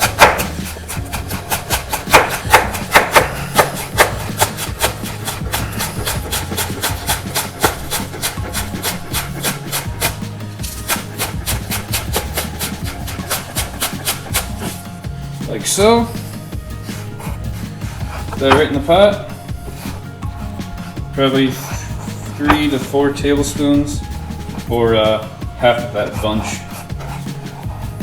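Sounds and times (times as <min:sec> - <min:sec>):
knife chopping on cutting board: 0:00.0 - 0:14.8, 0:17.9 - 0:20.0, 0:20.8 - 0:24.0.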